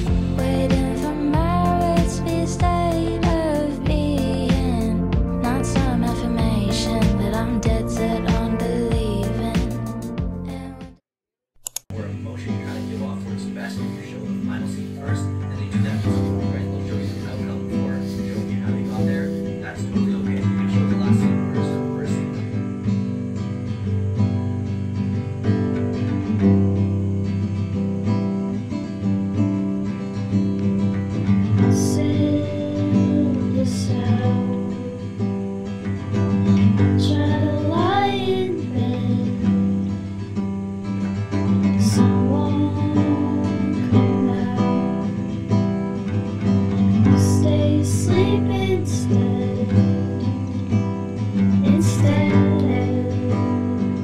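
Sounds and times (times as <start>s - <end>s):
strummed acoustic guitar: 0.0s - 10.8s, 11.9s - 54.0s
soft wordless singing: 0.0s - 11.0s, 12.0s - 22.3s, 31.6s - 35.3s, 36.8s - 39.9s, 41.8s - 45.2s, 47.1s - 50.6s, 51.6s - 54.0s.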